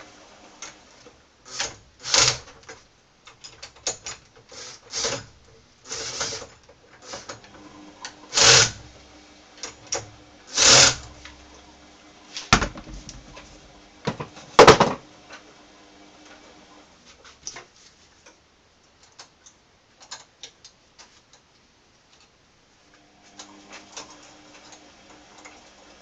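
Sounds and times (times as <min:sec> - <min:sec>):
metal parts scraping: 0:04.5 - 0:05.3, 0:05.9 - 0:07.4.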